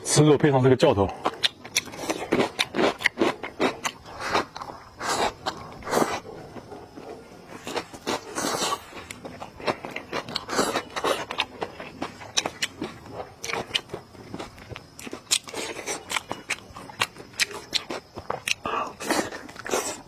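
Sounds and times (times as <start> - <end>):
person chewing with wet smacks: 1.1 - 20.0
small crunches: 1.1 - 20.0.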